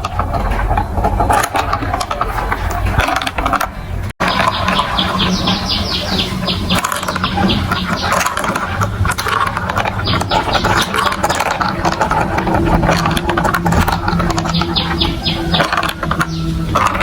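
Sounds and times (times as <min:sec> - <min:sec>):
steady motor hum: 0:04.2 - 0:17.0
marbles clicking down marble run: 0:06.5 - 0:17.0.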